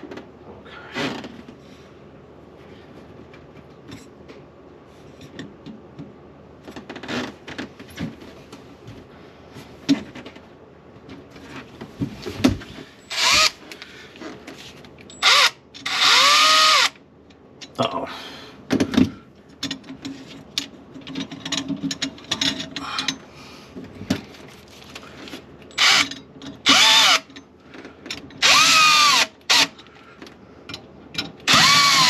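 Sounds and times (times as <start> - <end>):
cordless drill whining: 13.1 - 13.6, 15.2 - 17.0, 25.8 - 27.3, 28.4 - 29.8, 31.5 - 32.0
knocks and clinks of parts: 18.7 - 28.6, 29.5 - 31.8.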